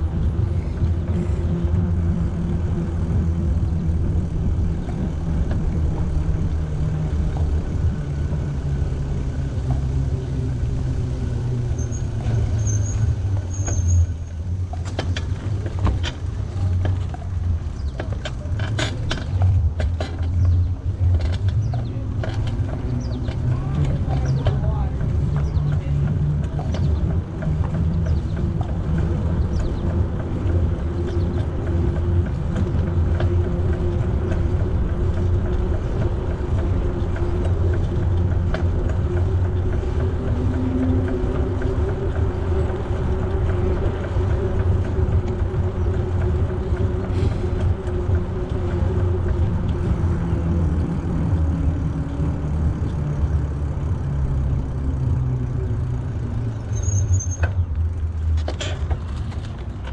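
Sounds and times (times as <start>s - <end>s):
bicycle tyres rolling on path: 0.0s - 59.9s.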